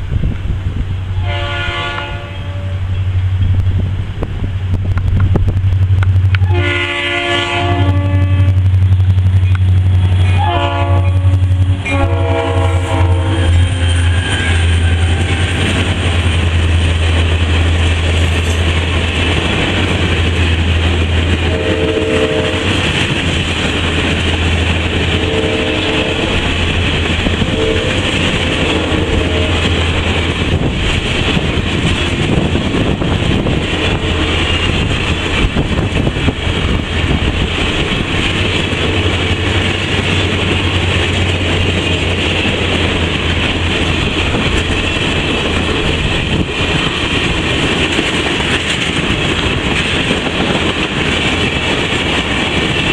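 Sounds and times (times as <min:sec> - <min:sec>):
train low rumble: 0:00.0 - 0:52.9
faint train horn blasts: 0:01.1 - 0:03.1, 0:06.3 - 0:08.7, 0:10.2 - 0:15.9, 0:21.3 - 0:23.0, 0:24.9 - 0:30.3, 0:33.5 - 0:35.0
train wheels clattering on rails: 0:02.9 - 0:52.9.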